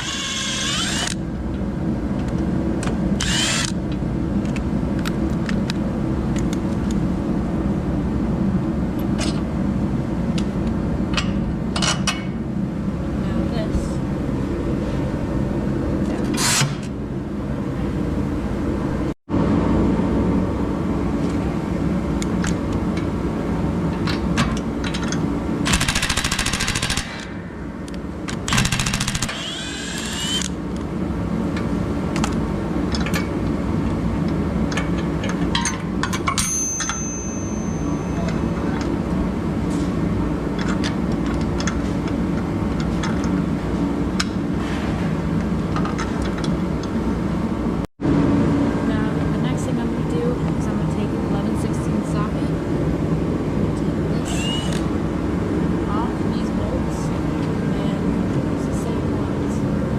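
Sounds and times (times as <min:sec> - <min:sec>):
steady machine hum: 0:00.0 - 0:59.9
tools clicking and clanking: 0:23.9 - 0:25.3.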